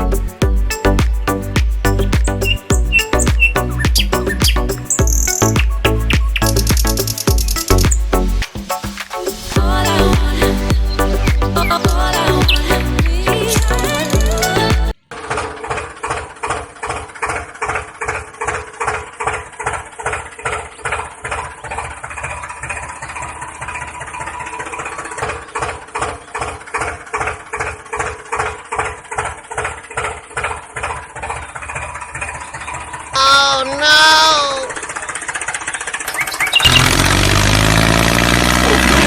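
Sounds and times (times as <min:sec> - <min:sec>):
tractor engine chugging at idle: 0:34.8 - 0:39.0.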